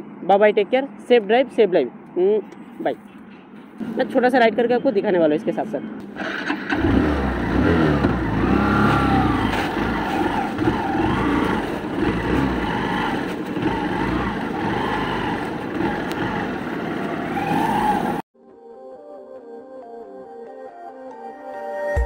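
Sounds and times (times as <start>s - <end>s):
motorcycle engine revving: 6.2s - 18.2s.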